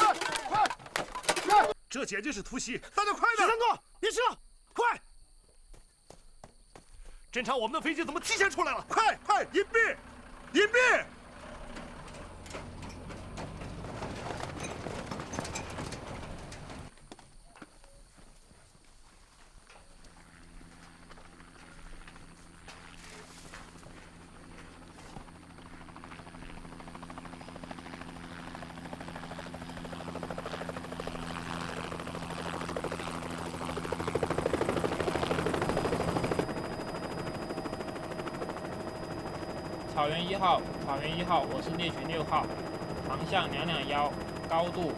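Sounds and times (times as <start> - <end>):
clattering gear: 0.0 - 1.8, 11.5 - 16.9
quick clicks and rustles: 0.0 - 1.8, 11.8 - 16.9
helicopter rotor chop: 7.6 - 16.9, 20.4 - 44.9
hurried footsteps: 12.0 - 17.4.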